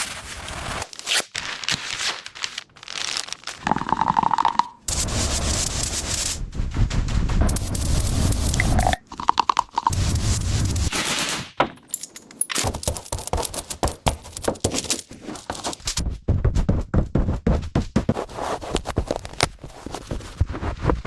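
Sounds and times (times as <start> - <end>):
knocks clicks and scrapes: 7.2 - 16.1, 17.9 - 21.0.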